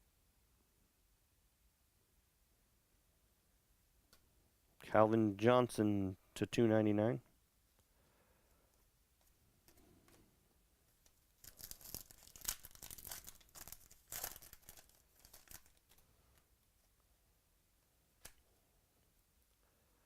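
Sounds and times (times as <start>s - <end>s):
packaging crinkling and tearing: 11.0s - 16.4s.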